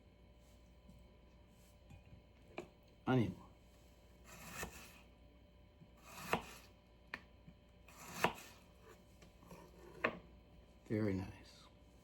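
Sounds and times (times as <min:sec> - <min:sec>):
knife slicing onion: 0:04.2 - 0:05.1, 0:05.8 - 0:10.2.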